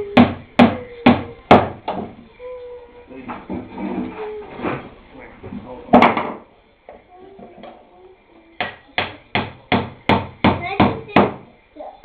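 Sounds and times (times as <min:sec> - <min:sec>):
hammer striking nail into wood: 0:08.6 - 0:11.4.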